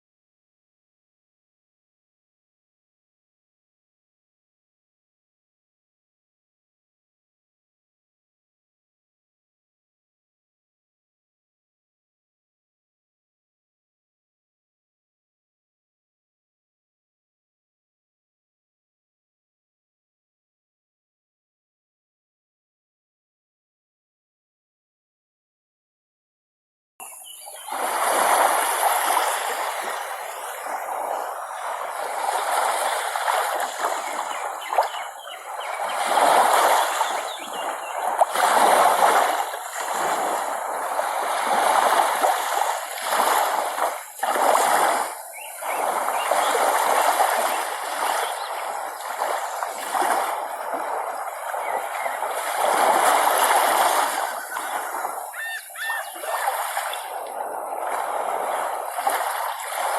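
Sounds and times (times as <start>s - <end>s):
water splashing: 27.2s - 59.9s.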